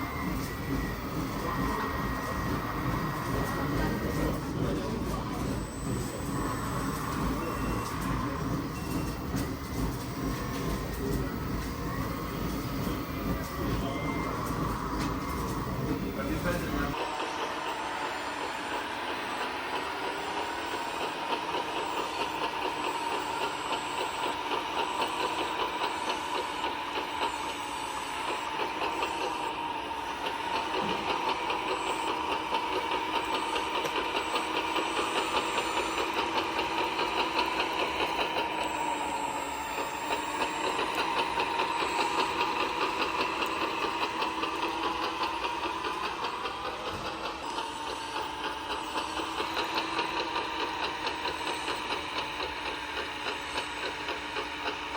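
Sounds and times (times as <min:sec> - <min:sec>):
model truck motor whine: 0:00.0 - 0:54.9.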